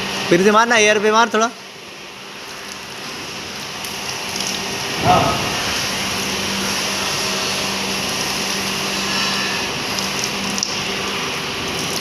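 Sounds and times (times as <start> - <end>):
constant low hum: 1.7 - 9.0.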